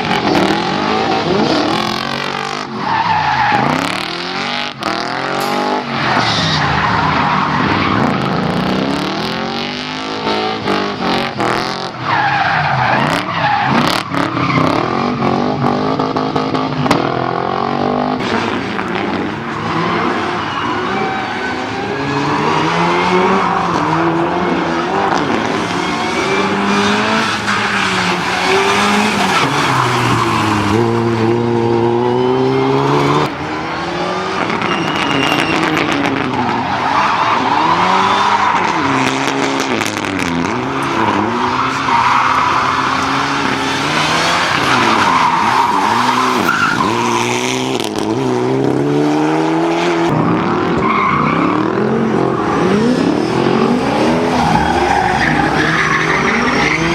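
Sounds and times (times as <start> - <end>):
car engine revving: 12.7 - 56.9
tyres squealing: 18.5 - 47.2, 53.7 - 56.9.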